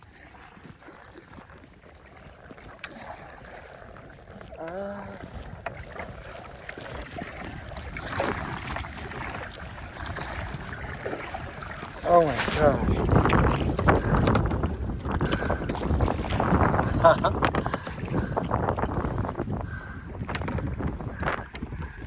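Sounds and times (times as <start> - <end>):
paddle strokes and water splashing: 0.0 - 22.0
wind rumbling on microphone: 0.0 - 22.0
person grunting: 4.6 - 5.2.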